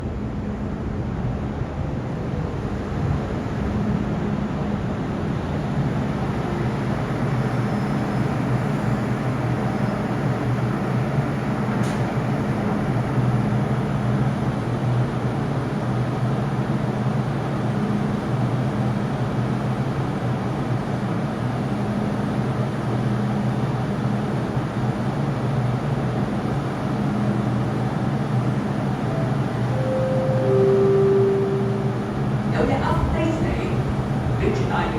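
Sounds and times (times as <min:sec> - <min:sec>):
train rumbling at platform: 0:00.0 - 0:34.9.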